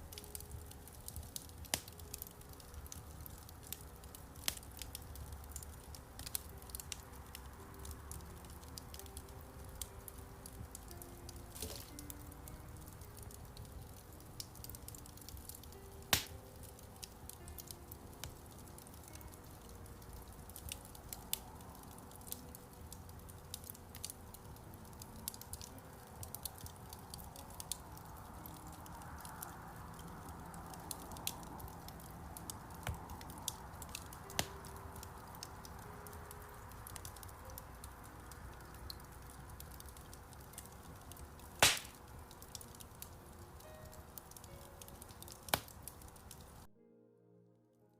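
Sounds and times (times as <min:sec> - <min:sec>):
wood fire crackling: 0:00.0 - 0:46.7
loud sharp pops: 0:41.6 - 0:42.0.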